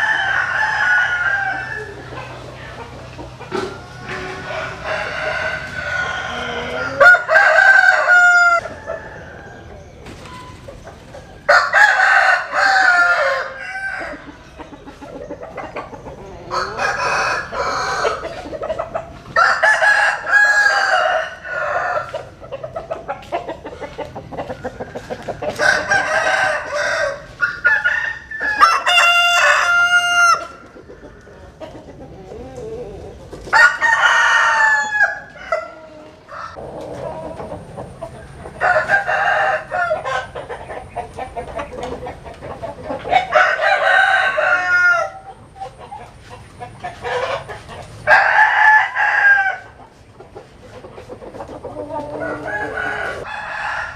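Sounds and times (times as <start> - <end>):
rooster crowing: 0.0 - 2.2, 3.8 - 9.9, 11.3 - 14.3, 16.5 - 18.4, 19.4 - 22.3, 24.6 - 30.6, 33.5 - 37.4, 38.6 - 40.4, 43.2 - 45.3, 48.0 - 49.8, 51.9 - 53.9
chickens clucking: 0.0 - 53.9.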